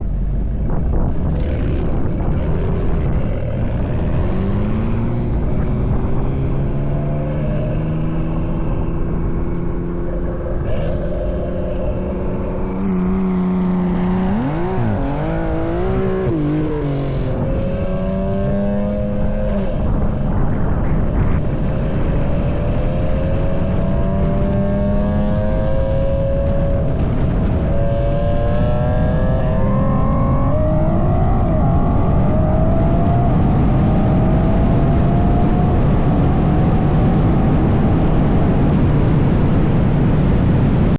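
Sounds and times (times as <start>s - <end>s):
car engine at full throttle: 0.0s - 40.9s
wind and road noise: 0.0s - 40.9s.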